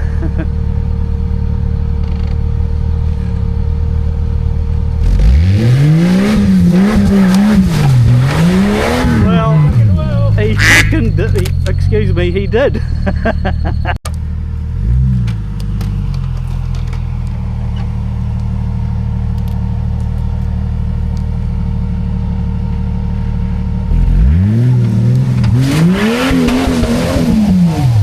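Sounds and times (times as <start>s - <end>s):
car engine revving: 4.7s - 12.4s, 14.1s - 28.0s.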